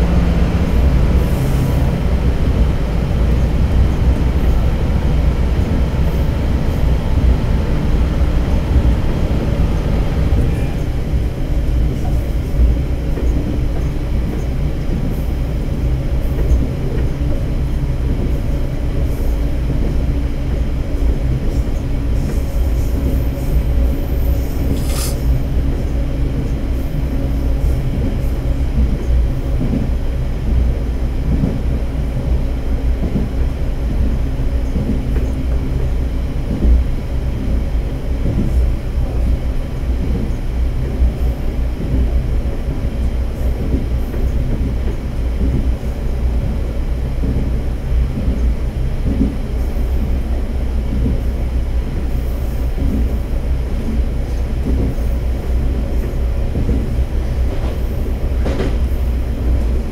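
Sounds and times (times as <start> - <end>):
railcar rumbling through tunnel: 0.0 - 59.9
brief high squeak: 24.7 - 25.3.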